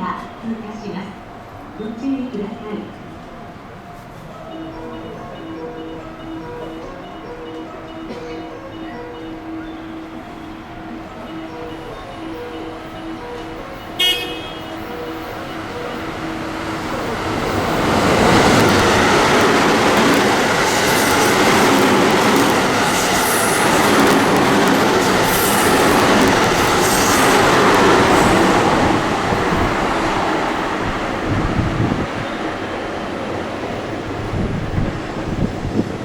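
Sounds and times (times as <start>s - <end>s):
train passing at speed: 0.0s - 36.0s.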